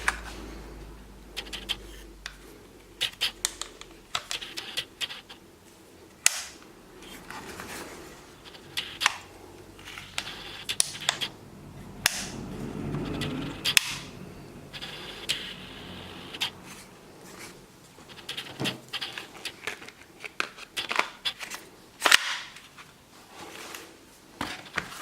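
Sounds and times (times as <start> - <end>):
rustling: 0.0 - 11.4.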